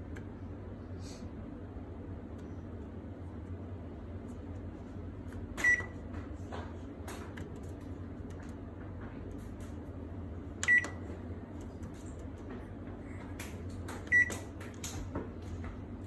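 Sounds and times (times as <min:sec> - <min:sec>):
microwave oven beeping: 0:05.2 - 0:06.1, 0:10.4 - 0:11.7, 0:13.9 - 0:15.0.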